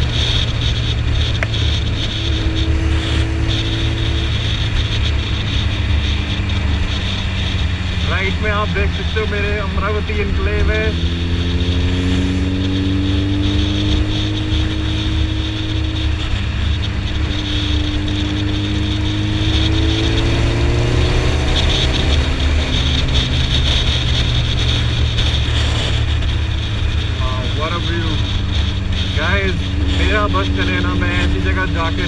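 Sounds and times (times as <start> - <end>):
motorcycle engine cruising: 0.0 - 32.0.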